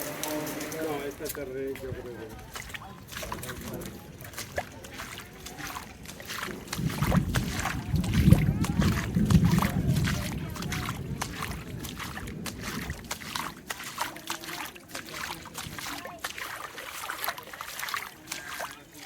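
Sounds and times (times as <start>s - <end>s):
water dripping and splashing: 0.0s - 19.0s
low rumble: 5.8s - 13.6s.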